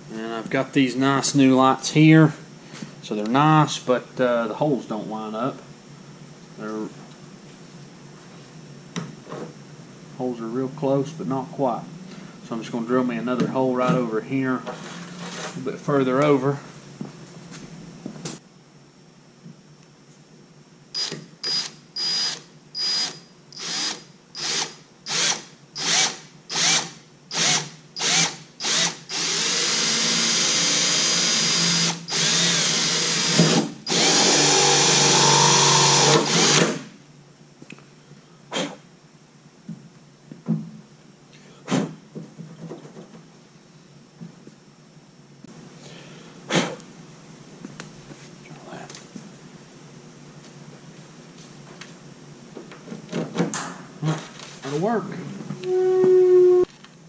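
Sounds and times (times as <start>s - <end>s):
electric drill drilling: 21.0s - 36.9s.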